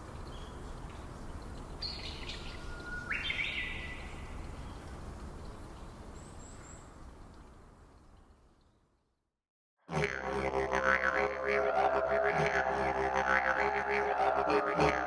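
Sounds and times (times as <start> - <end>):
low background hiss: 0.0 - 8.9.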